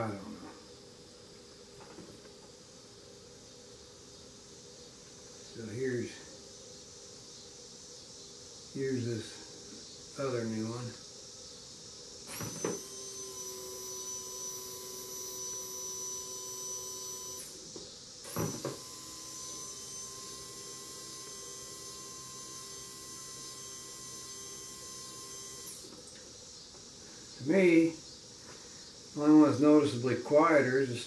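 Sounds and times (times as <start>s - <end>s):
electric fuel pump whining: 12.2s - 27.2s.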